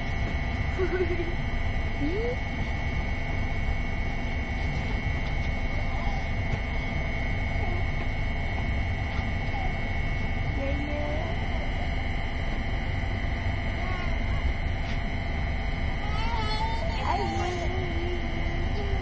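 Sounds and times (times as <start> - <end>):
thin high whine: 0.0 - 19.0
train carriage rumble: 13.8 - 19.0.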